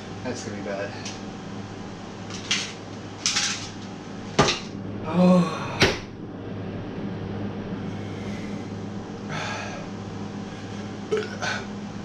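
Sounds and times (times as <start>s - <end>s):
low electrical hum: 0.0s - 12.0s
man breathing hard: 7.9s - 11.7s.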